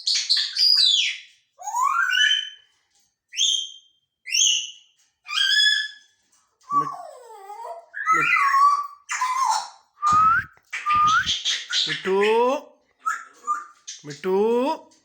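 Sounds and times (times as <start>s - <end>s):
parrot whistled calls: 0.4s - 2.6s, 5.3s - 6.0s, 8.0s - 12.0s.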